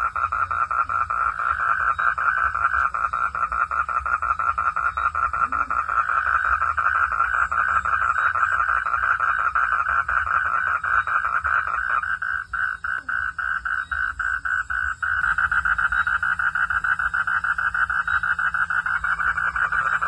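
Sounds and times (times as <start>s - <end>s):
frogs calling in chorus: 0.0s - 20.0s.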